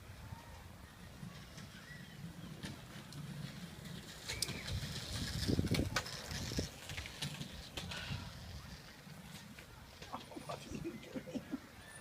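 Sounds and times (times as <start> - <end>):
bird chirp: 0.9 - 2.6.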